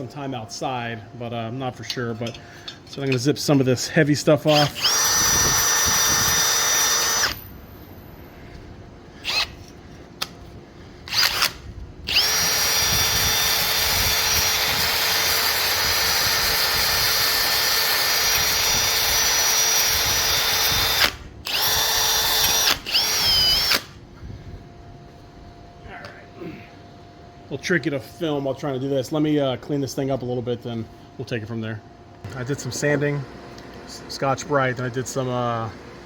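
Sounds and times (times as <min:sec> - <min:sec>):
power drill whining: 0:04.5 - 0:07.6, 0:09.2 - 0:09.8, 0:11.0 - 0:24.0.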